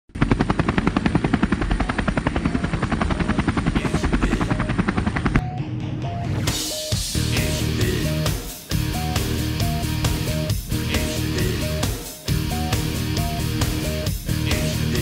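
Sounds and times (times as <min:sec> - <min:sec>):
helicopter rotor blades chopping: 0:00.1 - 0:05.6
sustained synth music: 0:01.0 - 0:15.0.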